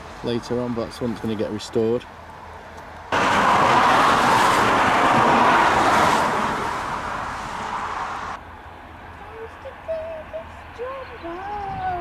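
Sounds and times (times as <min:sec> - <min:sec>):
vehicle passing tyre noise: 0:02.2 - 0:08.4.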